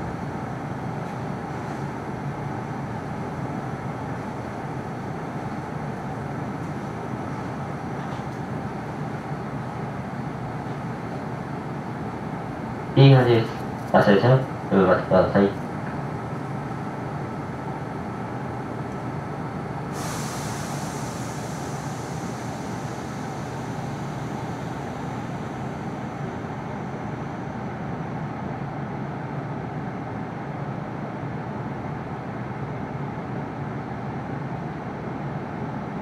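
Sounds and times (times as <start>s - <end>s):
train equipment humming: 0.0s - 36.0s
air release hiss: 19.9s - 26.0s.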